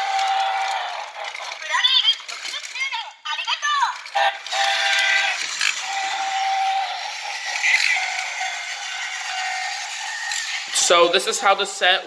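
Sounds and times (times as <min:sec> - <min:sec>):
toy train rattling hiss: 0:00.0 - 0:12.0
electronic toy jingle tones: 0:04.4 - 0:10.5.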